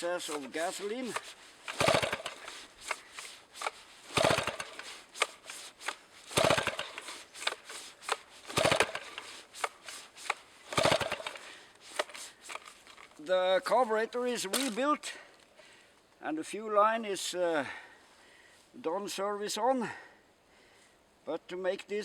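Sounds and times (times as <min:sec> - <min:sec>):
chainsaw pull-start cranking: 0:00.0 - 0:13.4, 0:14.2 - 0:14.9.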